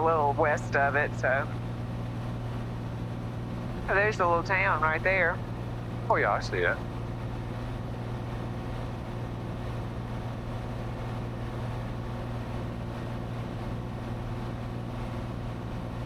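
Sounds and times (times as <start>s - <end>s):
propeller airplane engine drone: 0.0s - 16.0s.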